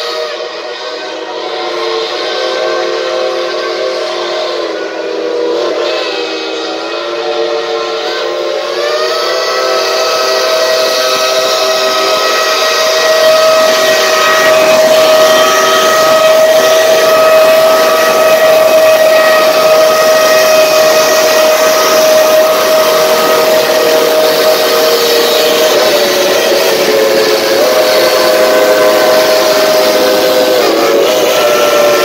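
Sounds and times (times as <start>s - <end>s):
steam hiss: 0.0s - 32.0s
steam whistle blast: 0.0s - 32.0s.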